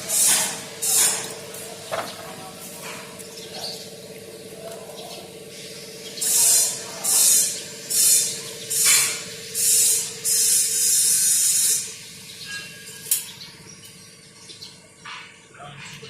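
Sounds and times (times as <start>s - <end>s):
hissing jet of spray: 0.0s - 1.3s, 5.5s - 12.0s.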